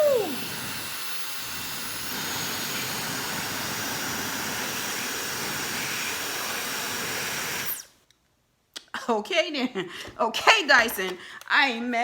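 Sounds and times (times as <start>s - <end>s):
hair dryer blowing air: 0.0s - 7.9s.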